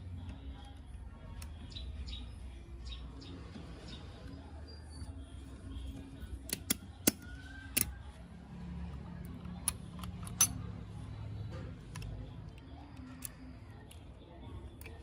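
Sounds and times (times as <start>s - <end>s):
small tools clicking and tapping: 6.5s - 8.0s, 9.5s - 10.7s.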